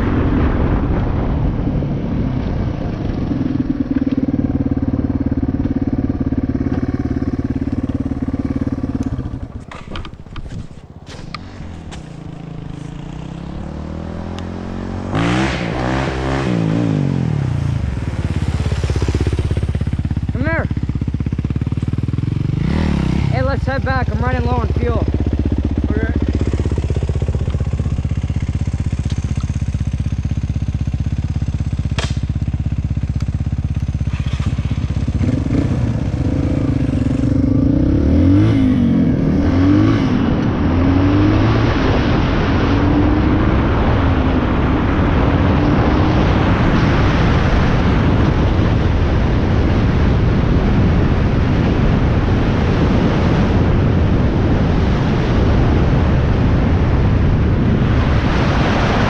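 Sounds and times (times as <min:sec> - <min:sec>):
wind rushing over microphone: 0:00.0 - 0:59.0
dirt bike engine revving: 0:11.1 - 0:48.9.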